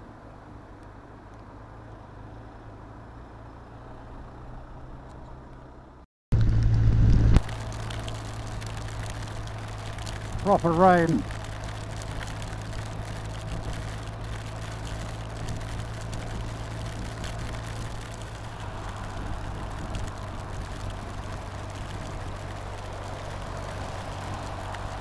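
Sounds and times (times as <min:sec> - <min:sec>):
wind: 0:00.0 - 0:25.0
heavy rain hiss: 0:07.2 - 0:25.0.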